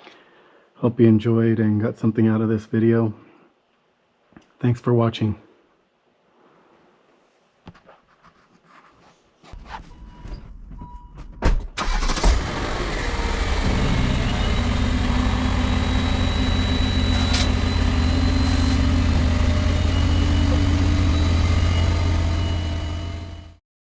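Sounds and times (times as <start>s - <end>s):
ignition clicks: 11.8s - 12.6s
car engine starting and idling: 11.8s - 23.6s.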